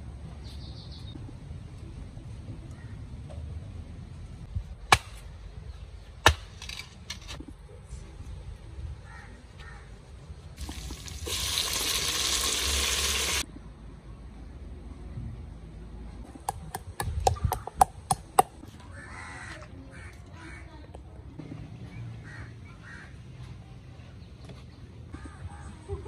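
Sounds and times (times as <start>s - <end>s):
loud sizzling: 11.2s - 13.4s.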